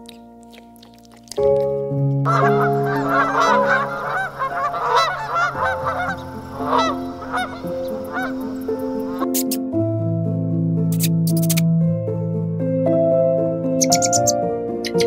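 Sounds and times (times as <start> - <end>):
soft background music: 0.0 - 15.0
geese honking: 2.3 - 9.4, 13.8 - 14.4.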